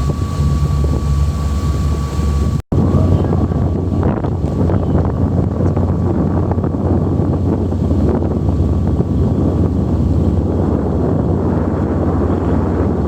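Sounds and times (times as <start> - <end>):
water rushing: 0.0 - 4.8
boat engine droning: 0.0 - 13.0
wind buffeting microphone: 0.0 - 13.0.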